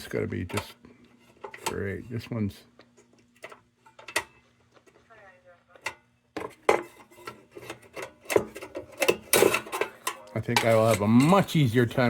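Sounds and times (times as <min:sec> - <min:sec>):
low steady hum: 0:00.0 - 0:12.0
metal parts clicking and clattering: 0:07.3 - 0:11.9.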